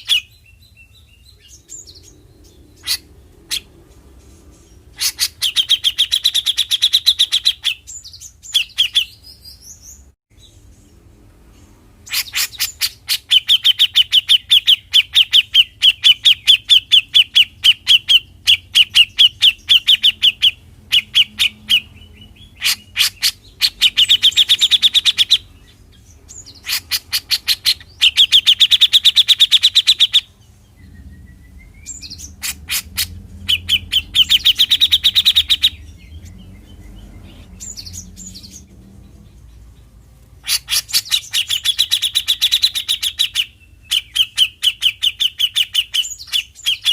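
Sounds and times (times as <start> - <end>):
bird ticking calls: 12.0 - 46.9.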